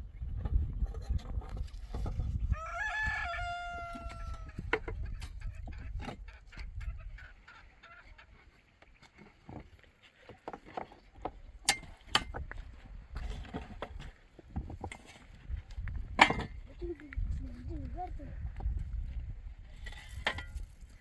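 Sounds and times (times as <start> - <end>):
chickens clucking: 3.3 - 9.4.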